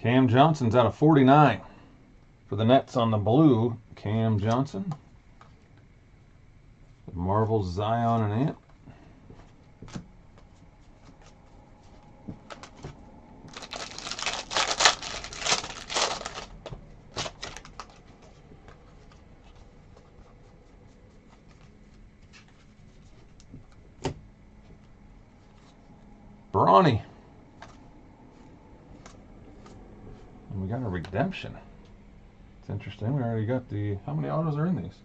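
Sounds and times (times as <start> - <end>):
foil wrapper tearing and crinkling: 13.5 - 18.1.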